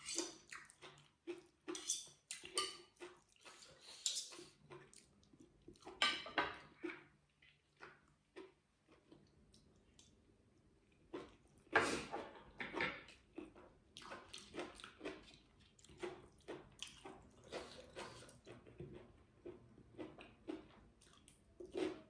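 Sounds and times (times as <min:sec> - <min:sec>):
wet squishy chewing: 0:00.0 - 0:06.0, 0:13.1 - 0:22.0
crunchy chew: 0:00.1 - 0:06.0, 0:13.1 - 0:22.0.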